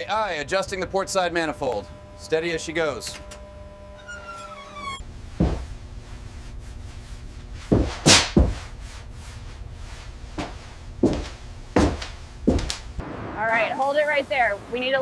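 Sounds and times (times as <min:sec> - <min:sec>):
steady low rumble: 0:05.0 - 0:14.9
heavy thuds and knocks: 0:05.3 - 0:05.8, 0:07.6 - 0:08.8, 0:10.4 - 0:13.0.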